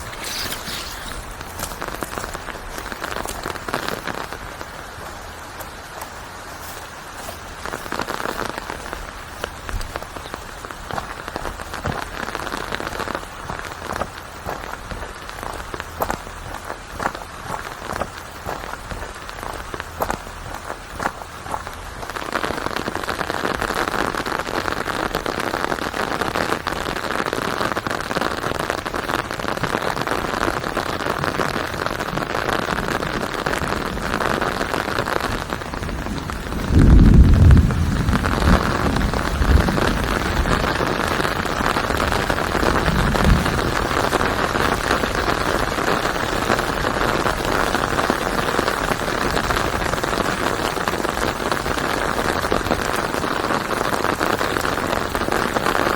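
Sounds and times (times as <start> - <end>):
heavy rain hissing: 0.0 - 55.9
thunder rumbling: 30.1 - 53.2.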